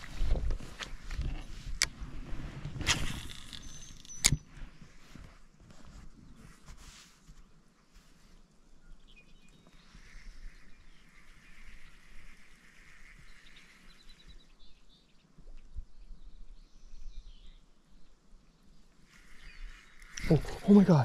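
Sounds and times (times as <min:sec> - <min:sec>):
wind rumble on microphone: 0:00.0 - 0:03.3
birds chirping and trilling: 0:03.4 - 0:04.6, 0:08.8 - 0:21.0.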